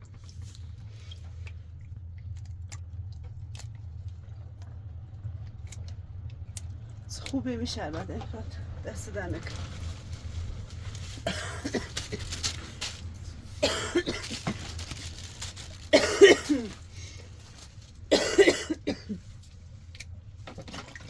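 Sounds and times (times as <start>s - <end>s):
woman coughing: 11.2s - 12.3s, 13.6s - 14.6s, 15.9s - 16.8s, 18.1s - 19.2s.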